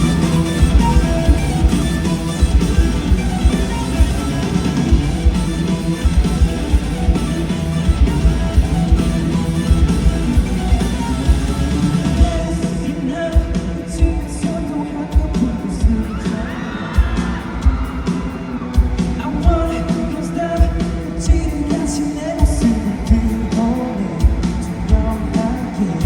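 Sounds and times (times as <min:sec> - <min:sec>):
rock band playing: 0:00.0 - 0:26.0
person singing: 0:11.9 - 0:26.0.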